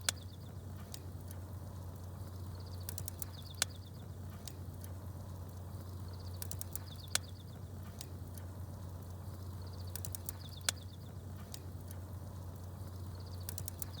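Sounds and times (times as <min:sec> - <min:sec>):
wood fire crackling and popping: 0:02.8 - 0:14.0.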